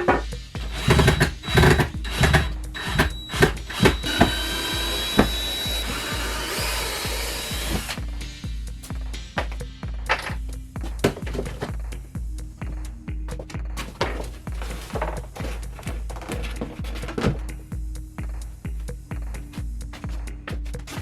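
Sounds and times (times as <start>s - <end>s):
background music with beat: 0.0s - 21.0s
power tool whining: 0.6s - 8.0s.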